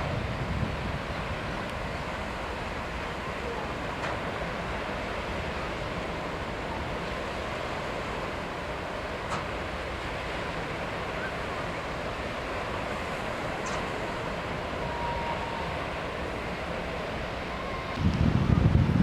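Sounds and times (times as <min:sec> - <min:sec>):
wind buffeting microphone: 0:00.0 - 0:04.0, 0:17.3 - 0:19.0
waves washing: 0:00.0 - 0:18.1.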